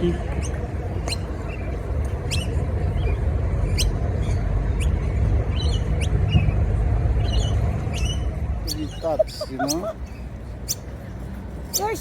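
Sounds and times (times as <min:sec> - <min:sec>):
steady low rumble: 0:00.0 - 0:11.7
parrots chattering: 0:07.2 - 0:10.9
parrots squeaking: 0:07.2 - 0:11.0, 0:11.7 - 0:12.0.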